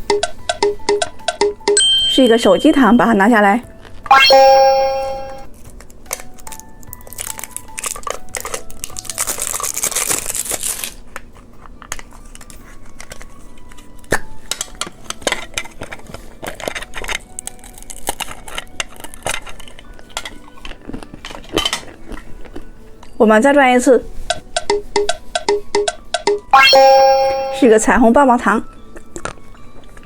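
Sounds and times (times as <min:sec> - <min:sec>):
plastic packaging crumpling and tearing: 0:05.5 - 0:22.7.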